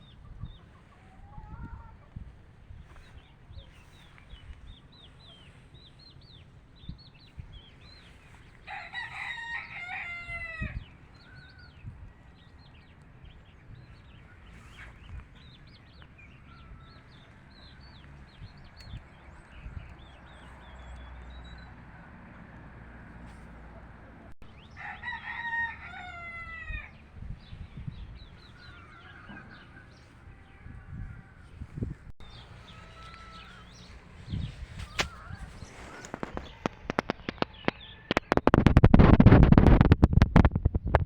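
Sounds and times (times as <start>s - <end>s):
small birds chirping: 0.0s - 22.5s, 23.1s - 38.9s
rooster crowing: 8.6s - 11.8s, 24.7s - 27.0s, 28.6s - 31.6s, 32.4s - 34.0s.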